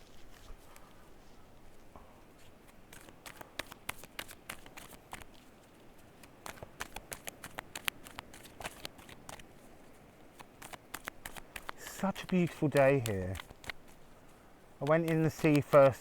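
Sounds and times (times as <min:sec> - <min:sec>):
cards being shuffled: 0:02.8 - 0:05.5, 0:06.2 - 0:09.6, 0:10.3 - 0:14.1, 0:14.8 - 0:16.0.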